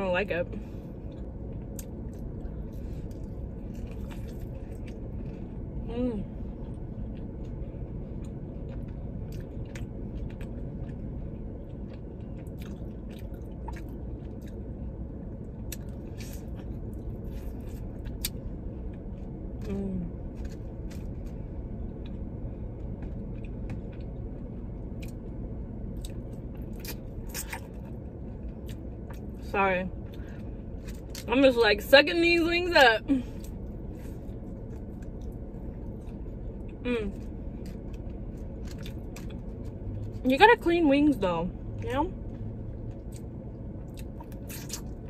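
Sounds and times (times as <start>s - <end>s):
low background rumble: 0.0s - 45.0s
chewing and sucking on chicken wings: 42.8s - 45.0s.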